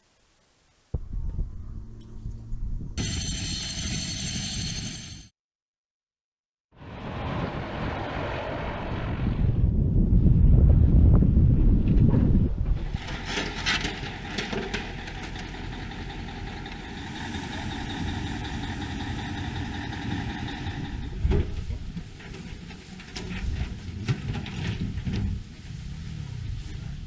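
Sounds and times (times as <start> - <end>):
high whine: 0.0 - 5.3, 16.3 - 22.0
large engine running: 12.9 - 22.2.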